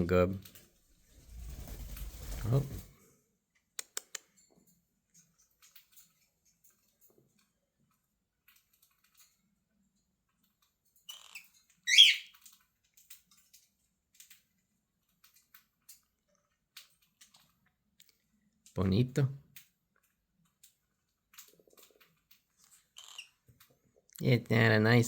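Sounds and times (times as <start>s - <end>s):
faint clicks: 3.8s - 4.4s
cockatiel soft chirp: 11.1s - 12.4s
cockatiel shrill begging call: 11.9s - 12.3s.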